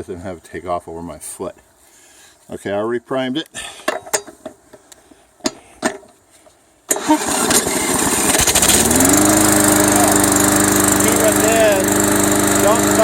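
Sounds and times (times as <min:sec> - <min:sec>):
starter clicks and knocks: 0:03.9 - 0:06.2
lawn mower engine running: 0:06.9 - 0:13.0.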